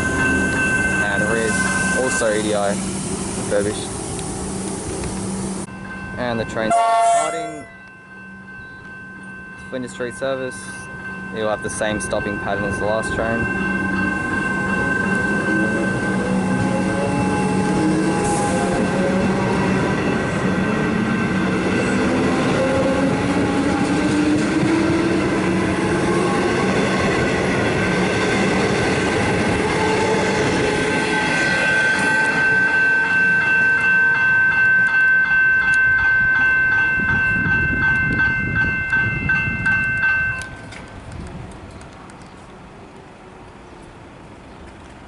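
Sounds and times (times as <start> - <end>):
high pulsing ringing: 0.0 - 3.9, 5.3 - 40.7
electric train motors whining: 0.0 - 5.7, 13.8 - 34.0.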